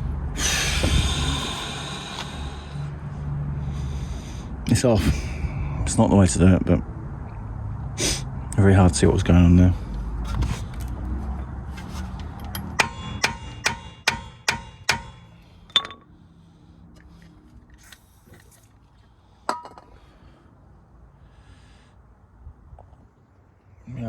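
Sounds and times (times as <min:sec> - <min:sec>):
hammer striking steel: 0:12.5 - 0:16.1.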